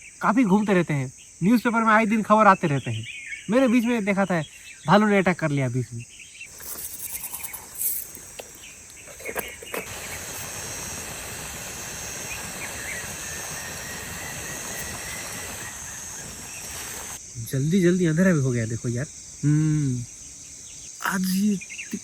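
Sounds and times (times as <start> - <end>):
crickets chirping: 0.0 - 22.0
steady rushing hiss: 6.4 - 22.0.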